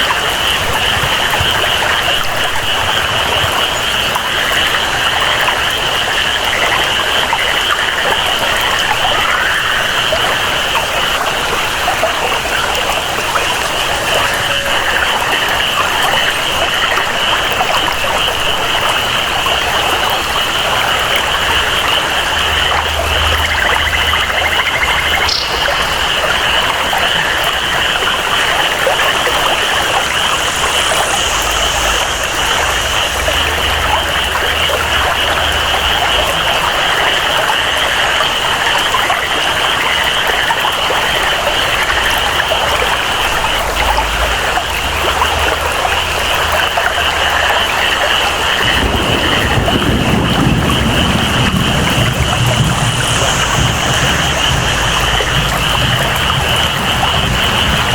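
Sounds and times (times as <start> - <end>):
flowing water: 0.0 - 57.9
steady rainfall: 0.0 - 57.9
high-pitched jungle chorus: 23.4 - 34.3, 51.3 - 57.9.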